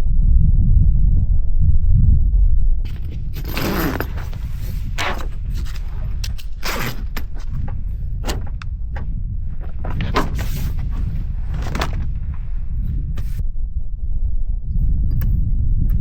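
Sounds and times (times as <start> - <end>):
low rumble: 0.0 - 16.0
scrapes and knocks of handling: 2.9 - 13.4.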